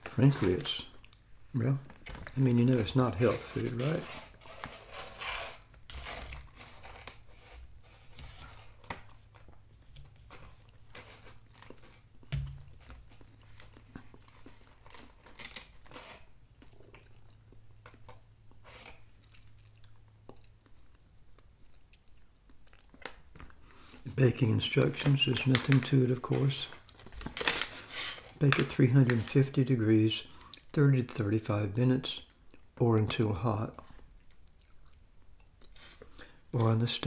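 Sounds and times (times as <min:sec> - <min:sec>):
quiet chewing: 0:00.9 - 0:01.3, 0:09.0 - 0:15.4, 0:16.4 - 0:24.1, 0:30.4 - 0:30.8, 0:32.2 - 0:32.8, 0:33.8 - 0:36.6
plastic bag crinkling: 0:01.8 - 0:16.3, 0:23.0 - 0:29.7.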